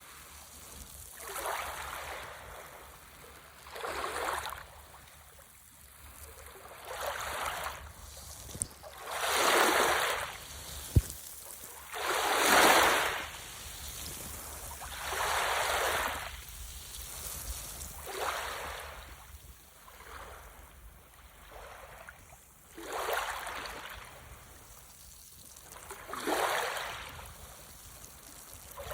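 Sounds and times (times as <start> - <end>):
small waves washing ashore: 0.0 - 28.9.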